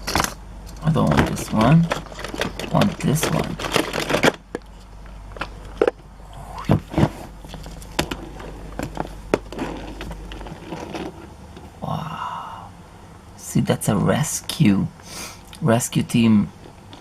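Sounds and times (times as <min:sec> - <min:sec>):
toy trucks clicking and knocking: 0:01.1 - 0:04.6.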